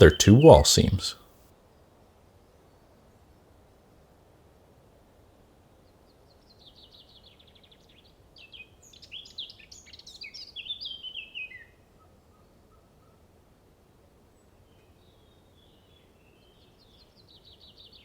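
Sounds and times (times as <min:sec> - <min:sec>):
faint background hiss: 0:00.0 - 0:06.0.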